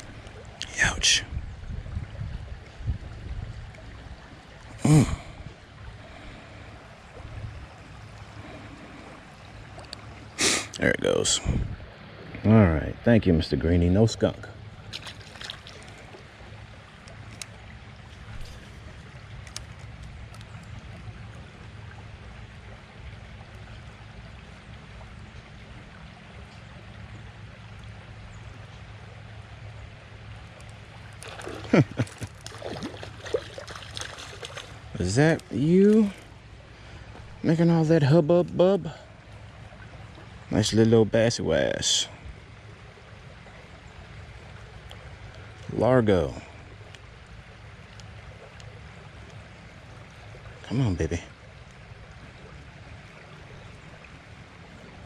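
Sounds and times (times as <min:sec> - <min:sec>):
creek water running: 0:00.0 - 0:55.0
person vocal sound: 0:04.8 - 0:05.4.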